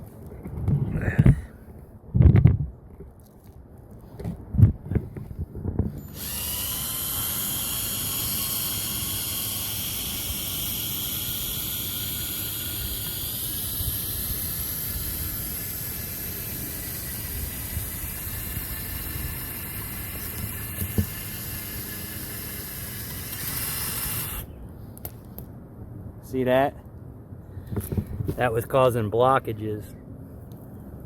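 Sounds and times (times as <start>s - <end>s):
power drill whining: 6.0s - 24.5s.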